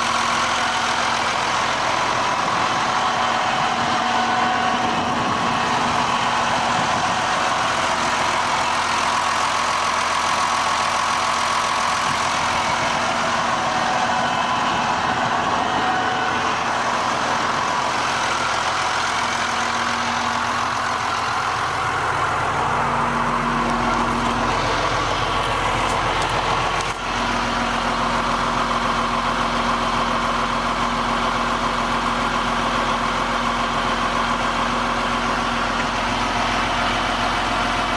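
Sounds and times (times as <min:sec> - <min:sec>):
tractor diesel engine idling: 0:00.0 - 0:37.9
deep hum: 0:11.3 - 0:28.6.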